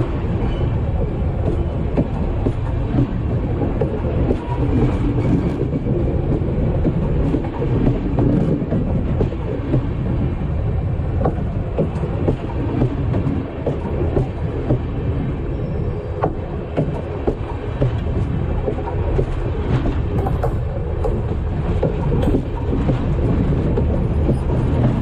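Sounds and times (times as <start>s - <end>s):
heavy rumble of train wheels: 0.0s - 25.0s
clicks and knocks from rails: 16.2s - 25.0s.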